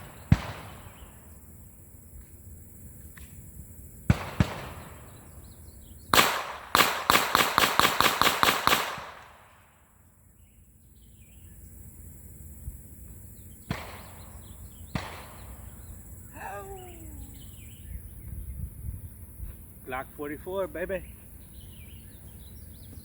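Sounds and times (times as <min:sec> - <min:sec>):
pistol shots: 0:00.0 - 0:01.3, 0:04.1 - 0:05.3, 0:06.1 - 0:09.7, 0:13.6 - 0:15.9.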